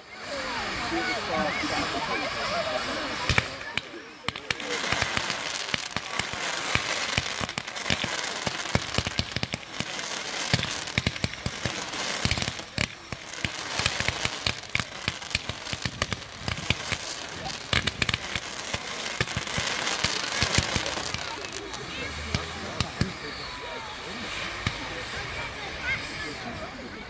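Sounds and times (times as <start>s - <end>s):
firework bangs and crackling: 0.0s - 27.0s
steady hiss: 0.1s - 27.0s.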